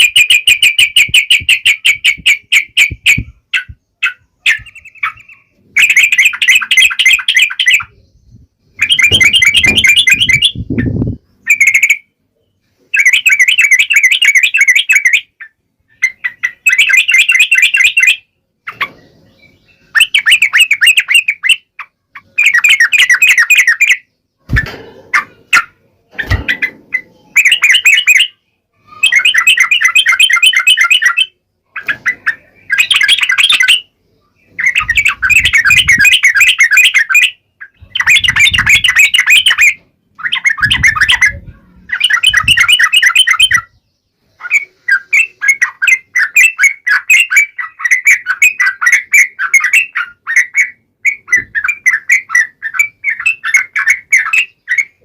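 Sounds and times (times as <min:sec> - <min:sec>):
bulbul singing chattering notes: 0:00.1 - 0:12.1, 0:34.5 - 0:55.0.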